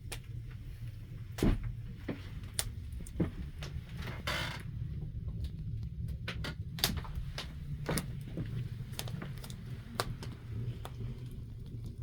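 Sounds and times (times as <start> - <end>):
low rumble of stove: 0.0 - 12.0
wood fire crackling: 0.0 - 12.0.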